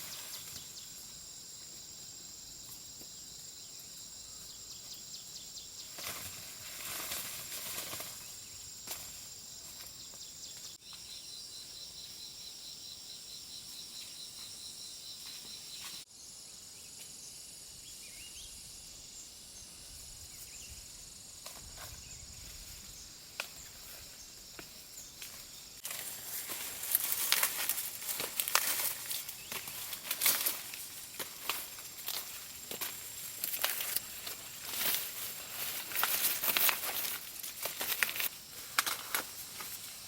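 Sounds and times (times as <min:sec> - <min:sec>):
insects chirping: 0:00.0 - 0:40.0.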